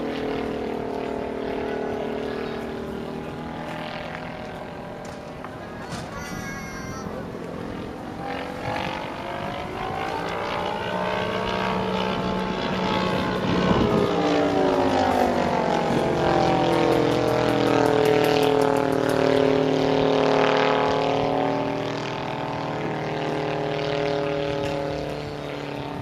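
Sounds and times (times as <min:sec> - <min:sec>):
propeller aircraft engine droning: 0:00.0 - 0:26.0.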